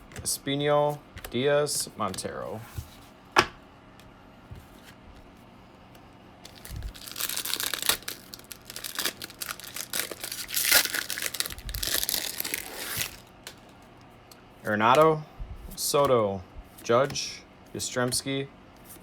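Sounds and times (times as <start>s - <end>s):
foil wrapper crinkling and tearing: 6.5s - 13.7s.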